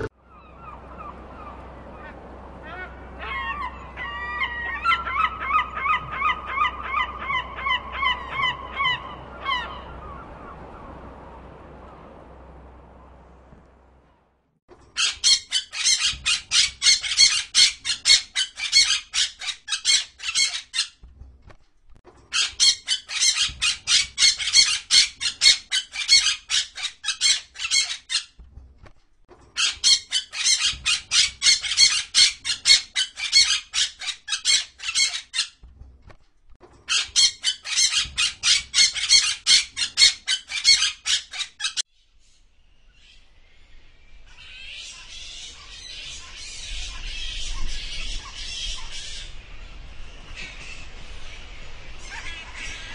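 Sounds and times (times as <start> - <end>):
parakeet squawking: 15.0 - 21.0, 22.3 - 28.3, 29.6 - 35.6, 36.9 - 41.8, 52.0 - 52.9.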